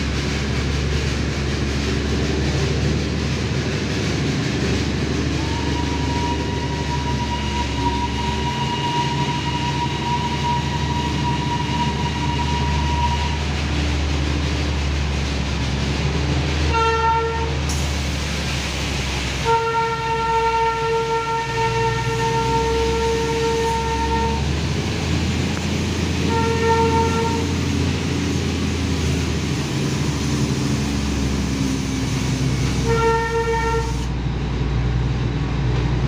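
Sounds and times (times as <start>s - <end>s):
train running with low rumble: 0.0s - 36.0s
locomotive horn blasts: 5.4s - 13.4s, 16.7s - 17.6s, 19.4s - 24.5s, 26.1s - 27.9s, 32.6s - 34.1s.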